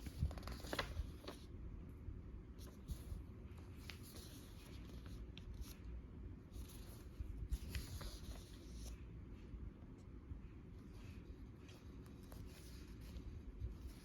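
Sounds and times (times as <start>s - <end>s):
paper pages turning: 0.0s - 1.5s, 2.6s - 5.9s, 6.5s - 9.0s, 11.0s - 14.0s.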